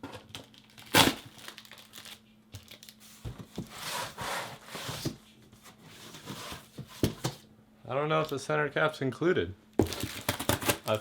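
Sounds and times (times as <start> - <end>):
rummaging through cardboard box: 1.4 - 7.4, 9.8 - 11.0.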